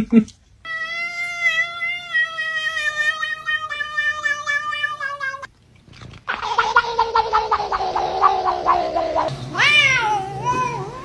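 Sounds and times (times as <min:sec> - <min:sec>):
cat yowling: 0:00.7 - 0:05.5, 0:06.3 - 0:11.0.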